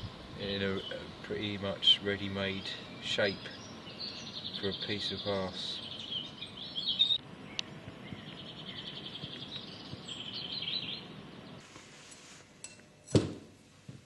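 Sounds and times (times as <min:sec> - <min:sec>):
bird chirps and trill: 0:02.0 - 0:11.6.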